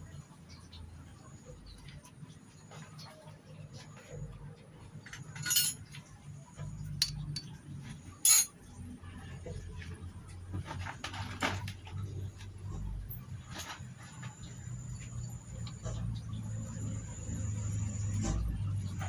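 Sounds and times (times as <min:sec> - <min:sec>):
low steady hum: 0:00.0 - 0:19.0
metal tools clinking: 0:05.0 - 0:06.0, 0:08.2 - 0:08.6.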